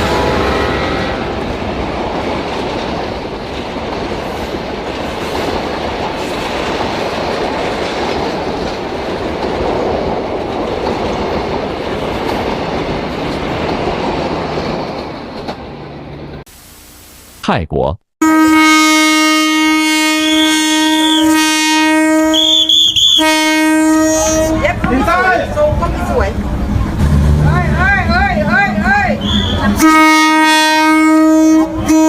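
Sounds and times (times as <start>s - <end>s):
train horn blast: 0.0s - 1.6s, 18.2s - 24.7s, 29.2s - 32.0s
train rumble and wheel clatter: 0.0s - 16.4s, 23.3s - 32.0s.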